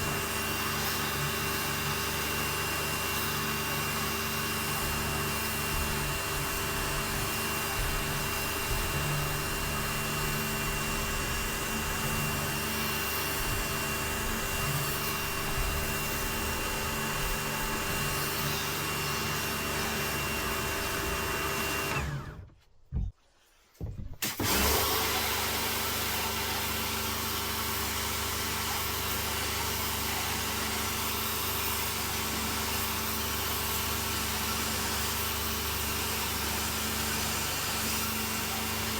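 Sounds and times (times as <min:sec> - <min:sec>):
pressure washer spraying: 0:03.1 - 0:22.0.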